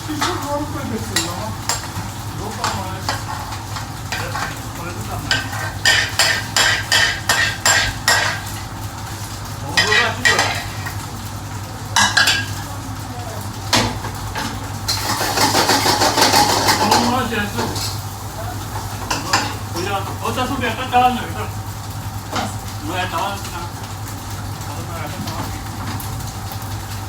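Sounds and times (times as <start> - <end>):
food sizzling: 0.0 - 27.0
metal utensil scraping pan: 2.6 - 4.6, 5.3 - 8.6, 9.8 - 11.0.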